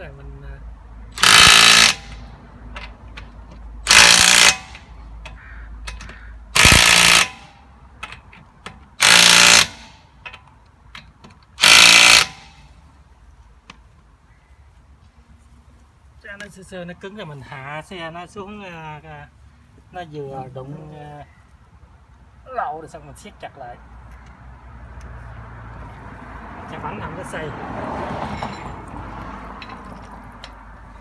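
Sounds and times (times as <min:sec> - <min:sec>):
impact wrench bursts: 0:01.1 - 0:02.9, 0:03.8 - 0:05.1, 0:05.8 - 0:08.2, 0:08.9 - 0:10.0, 0:11.6 - 0:12.7.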